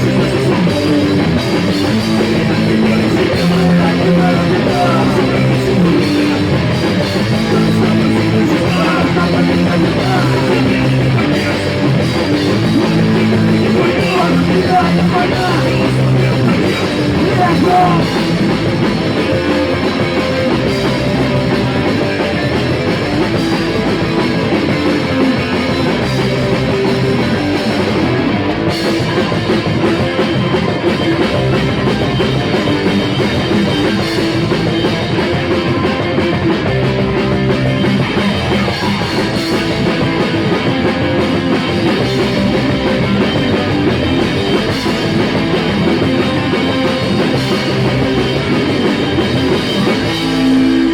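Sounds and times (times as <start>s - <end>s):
rock band playing: 0.0s - 50.9s.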